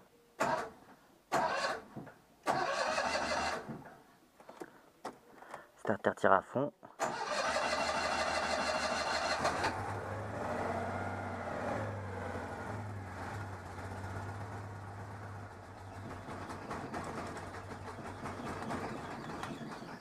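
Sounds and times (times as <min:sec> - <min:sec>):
car engine idling: 0:12.9 - 0:20.0.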